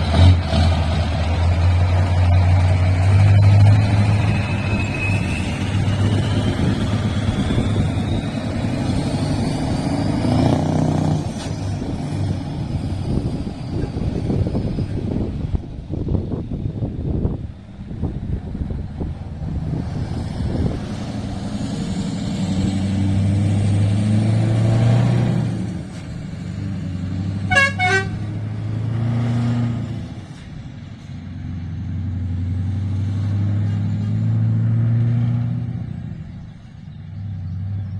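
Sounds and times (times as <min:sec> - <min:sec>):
truck engine droning: 0:00.0 - 0:37.9
short horn toots: 0:27.5 - 0:28.3.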